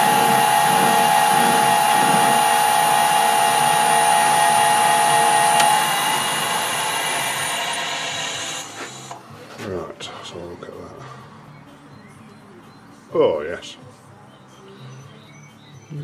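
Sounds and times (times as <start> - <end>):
metal lathe whining: 0.0 - 9.2.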